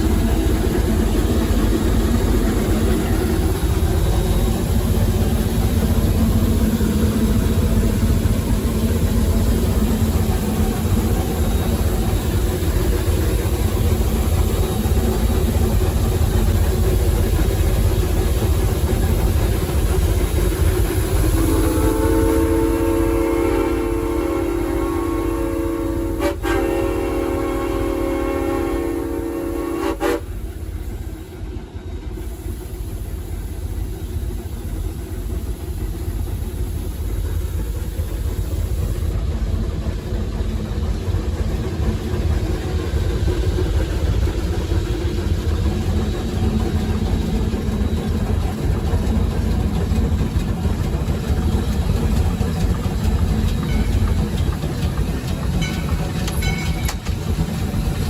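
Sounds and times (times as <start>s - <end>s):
locomotive low rumble: 0.0s - 58.0s
steam locomotive whistle chord: 21.3s - 30.4s.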